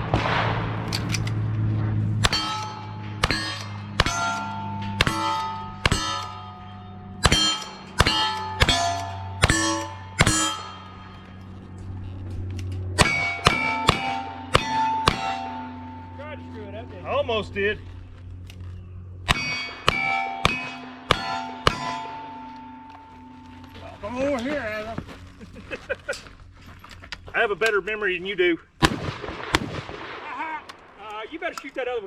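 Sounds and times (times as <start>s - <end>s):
gunshots: 0.0s - 10.6s, 13.0s - 16.1s, 19.3s - 22.4s, 28.8s - 31.4s
steel target clanging: 0.0s - 17.9s, 19.2s - 24.8s.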